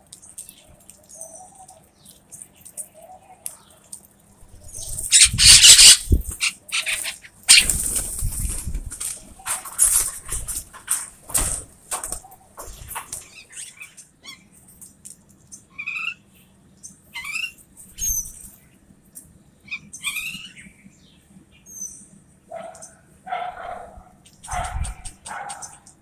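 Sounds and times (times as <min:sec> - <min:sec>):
birds squawking and chirping: 0:04.5 - 0:11.1, 0:12.0 - 0:14.6, 0:15.5 - 0:18.6, 0:19.6 - 0:20.9, 0:24.2 - 0:26.0.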